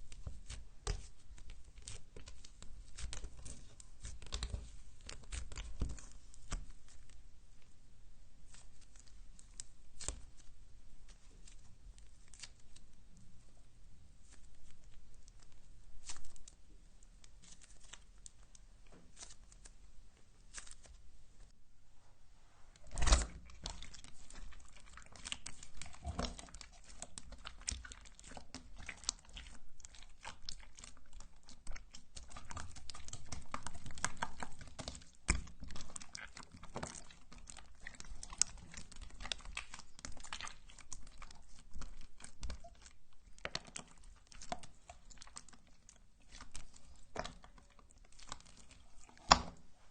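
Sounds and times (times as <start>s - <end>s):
slime squishing with sticky pops: 0.0s - 7.2s, 8.5s - 12.9s, 22.8s - 49.8s.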